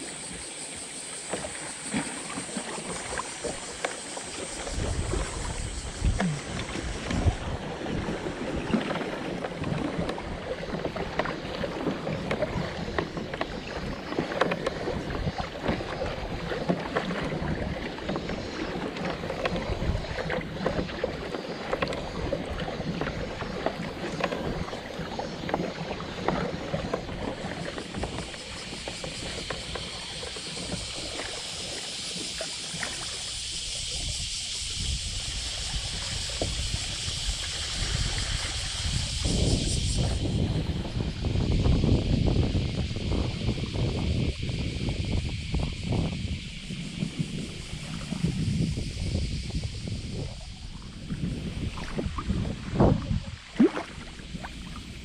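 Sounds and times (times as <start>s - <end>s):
water splashing against hull: 0.0s - 55.0s
wind on microphone: 1.9s - 55.0s
steady hiss: 27.8s - 51.8s.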